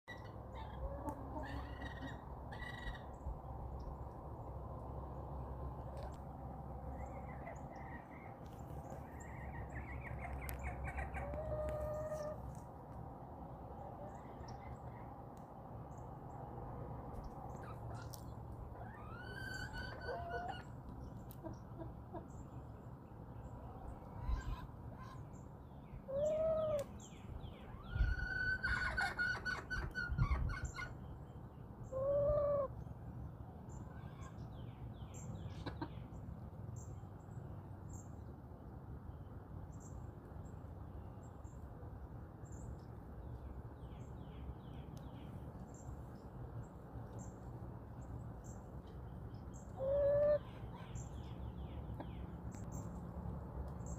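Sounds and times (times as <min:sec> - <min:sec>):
hens calling: 0:00.1 - 0:03.1, 0:09.3 - 0:12.5, 0:17.7 - 0:22.3, 0:49.7 - 0:50.8
songbirds chirping: 0:00.1 - 0:53.9.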